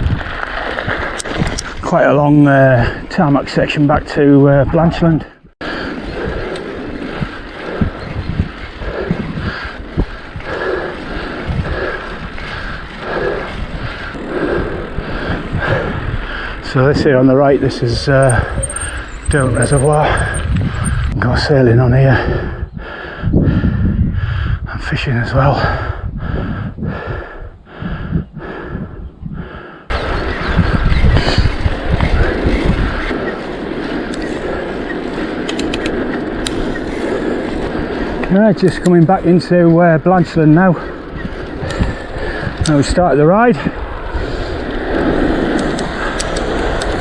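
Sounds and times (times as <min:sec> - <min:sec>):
bike clicks and rattles: 0:00.0 - 0:01.9, 0:05.6 - 0:21.2, 0:29.9 - 0:47.0
bike tyres rolling on tarmac: 0:00.0 - 0:22.2, 0:29.5 - 0:47.0
wind rushing over microphone: 0:00.0 - 0:47.0
cyclist breathing hard: 0:05.6 - 0:16.7, 0:17.9 - 0:21.2, 0:22.0 - 0:24.8, 0:25.5 - 0:38.4, 0:40.6 - 0:42.9, 0:43.6 - 0:47.0.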